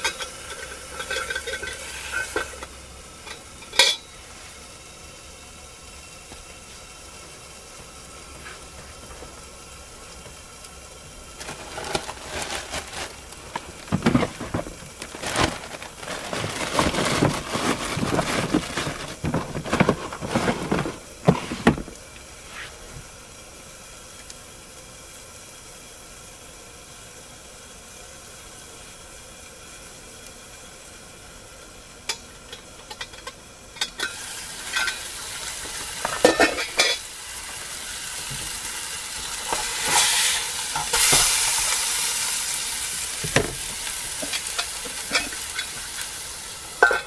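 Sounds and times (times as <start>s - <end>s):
food frying in a pot: 0.0s - 47.0s
knocks and rustling from handling: 11.4s - 22.0s.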